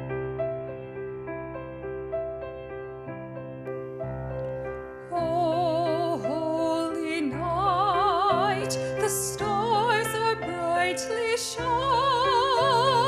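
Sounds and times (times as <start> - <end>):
piano accompaniment: 0.0 - 13.0
classical singer with vibrato: 5.1 - 13.0.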